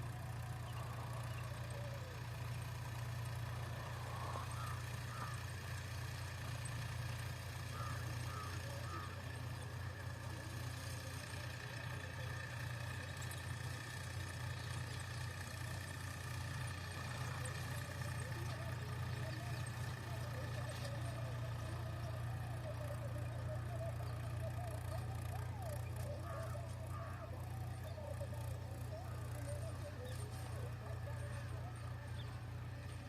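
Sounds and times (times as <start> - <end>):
tractor diesel engine droning: 0.0 - 33.0.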